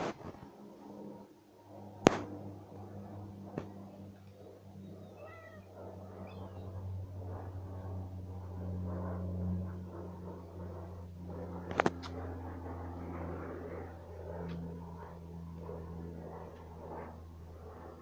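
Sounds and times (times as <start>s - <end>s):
steady low hum: 0.0s - 18.0s
cat meowing: 5.1s - 5.7s.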